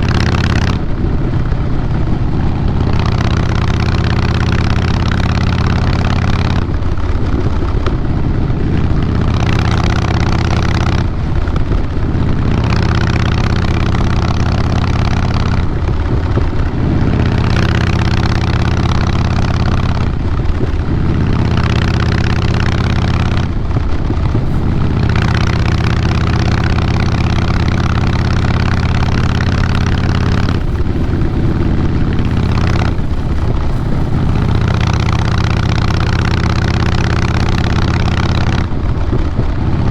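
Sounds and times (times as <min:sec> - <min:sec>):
motorcycle exhaust revving: 0:00.0 - 0:06.8, 0:24.2 - 0:38.7.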